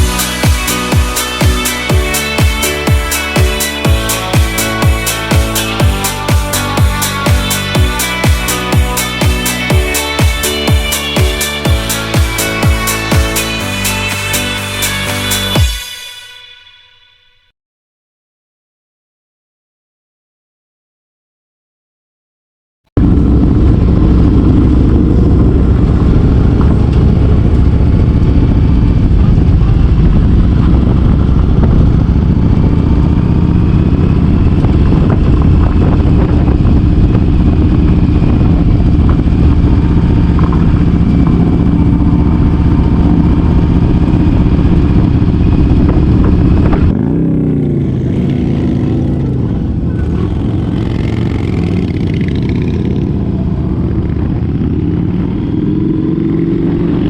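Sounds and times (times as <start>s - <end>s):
loud low rushing noise: 0.0s - 16.0s, 23.0s - 57.0s
motorcycle engine running: 0.0s - 16.0s, 23.0s - 57.0s.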